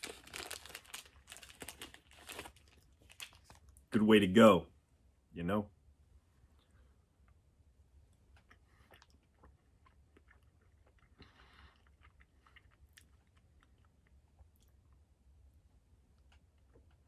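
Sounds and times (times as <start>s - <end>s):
chewing with mouth clicks: 8.2s - 15.1s, 16.1s - 17.0s.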